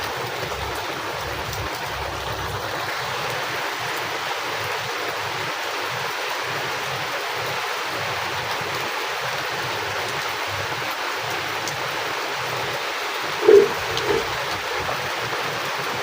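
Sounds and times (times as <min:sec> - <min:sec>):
heavy rain pouring: 0:00.0 - 0:16.0
low rumble: 0:13.4 - 0:14.9.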